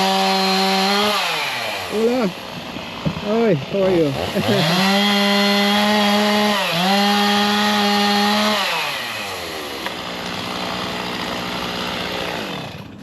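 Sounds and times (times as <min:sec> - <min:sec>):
chainsaw at high revs: 0:00.0 - 0:13.0.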